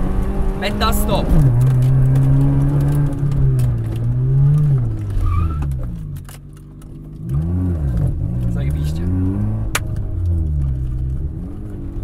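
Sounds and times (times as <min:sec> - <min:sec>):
car engine from inside cabin: 0:00.0 - 0:12.0.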